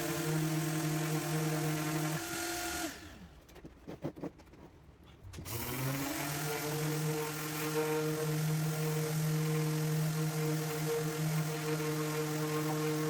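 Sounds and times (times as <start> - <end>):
shop vacuum humming: 0.0 - 3.1, 5.5 - 13.0
orbital sander humming: 5.9 - 13.0.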